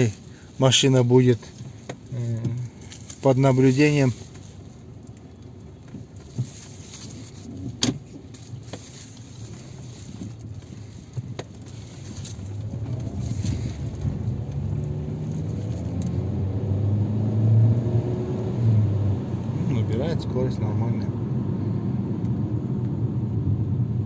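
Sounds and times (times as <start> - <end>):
car engine accelerating: 0.0 - 24.0
road noise: 0.0 - 24.0.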